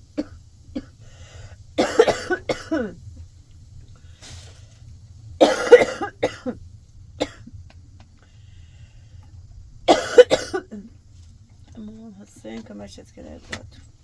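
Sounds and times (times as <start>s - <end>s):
woman coughing hard: 0.2s - 0.9s, 1.8s - 3.0s, 5.4s - 6.6s, 7.2s - 7.5s, 9.9s - 10.9s.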